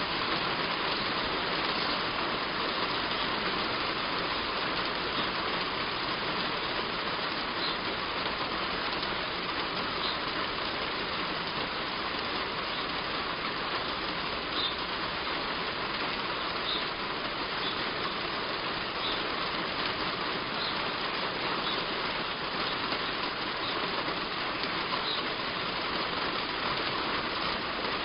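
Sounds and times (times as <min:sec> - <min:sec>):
heavy rain on a roof: 0:00.0 - 0:28.0
faint bird chirps: 0:07.6 - 0:07.9, 0:10.0 - 0:10.2, 0:14.5 - 0:14.8, 0:16.6 - 0:16.9, 0:17.6 - 0:17.9, 0:19.0 - 0:19.2, 0:20.6 - 0:20.8, 0:21.6 - 0:21.9, 0:25.0 - 0:25.3.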